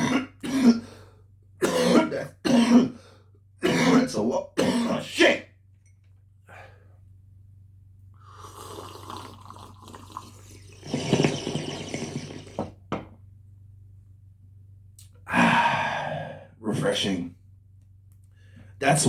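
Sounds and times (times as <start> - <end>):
loud breath out: 6.5 - 6.9, 15.3 - 16.6
liquid gurgling: 8.2 - 12.8.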